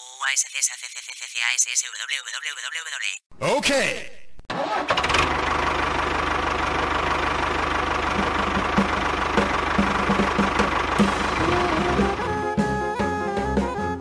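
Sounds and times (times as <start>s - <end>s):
tractor engine chugging: 4.6s - 12.8s.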